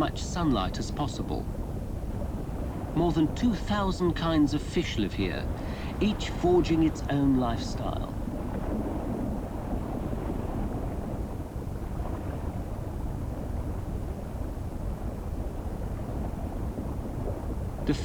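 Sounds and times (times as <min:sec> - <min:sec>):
faint hiss: 0:00.0 - 0:08.3, 0:17.8 - 0:18.0.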